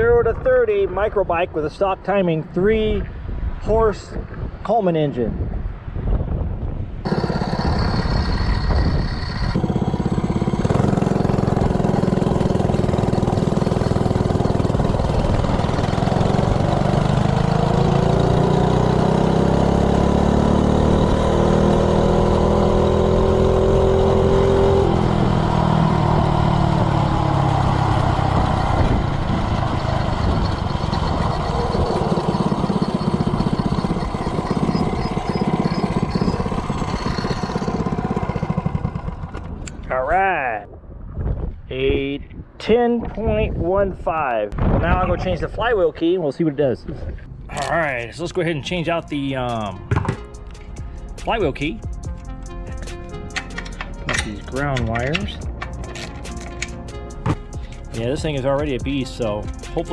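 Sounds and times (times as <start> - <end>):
rushing wind noise: 0.0 - 17.4, 21.0 - 46.0
minibike engine accelerating: 7.0 - 39.9.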